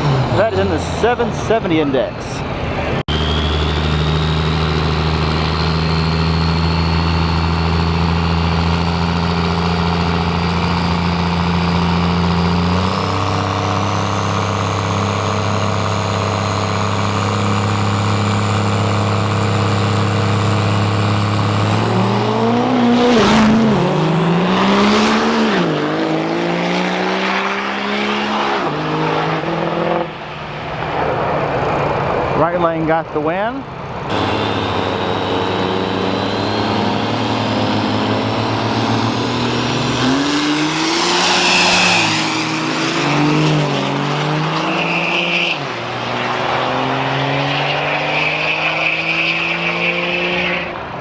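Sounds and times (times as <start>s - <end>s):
diesel truck engines revving: 0.0s - 51.0s
turbo whistle: 3.1s - 6.9s.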